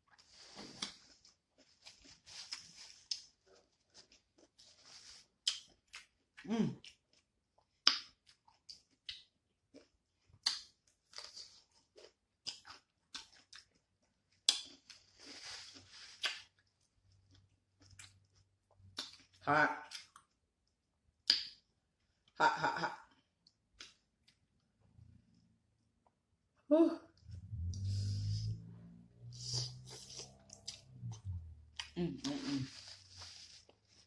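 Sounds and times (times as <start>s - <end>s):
wet chewing and crunching: 0.0s - 21.7s, 29.4s - 34.0s
low vocal sound: 26.7s - 32.8s.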